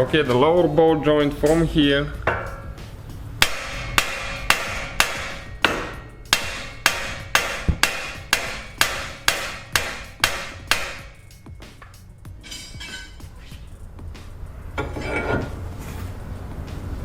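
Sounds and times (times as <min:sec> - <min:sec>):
hammer striking metal: 0:01.4 - 0:13.8.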